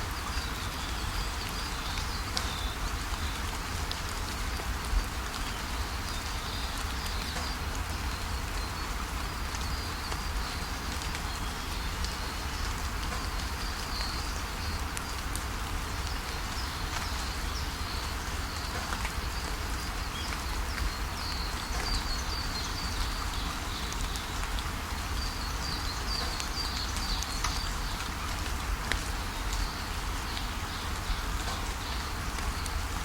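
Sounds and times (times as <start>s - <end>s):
rain falling: 0.0s - 33.0s
birds chirping: 16.1s - 32.6s.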